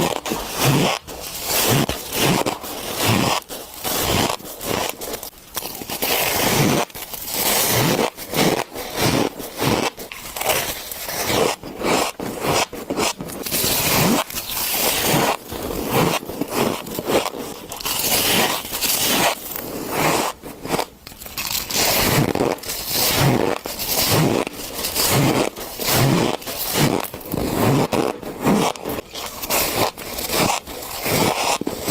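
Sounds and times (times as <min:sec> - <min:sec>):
ice being chewed: 0:20.9 - 0:28.0.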